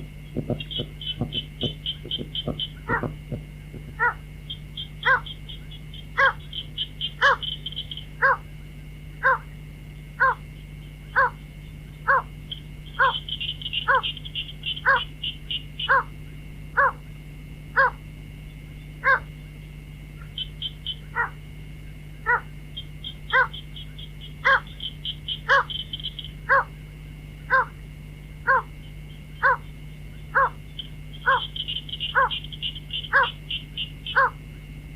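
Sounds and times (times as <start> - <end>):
rapid high chattering: 0.2 - 8.1
waterhen harsh calls: 0.4 - 3.3, 4.8 - 8.4, 12.9 - 16.1, 22.3 - 26.7, 27.5 - 27.7, 29.4 - 29.7, 30.3 - 30.6, 31.2 - 34.4.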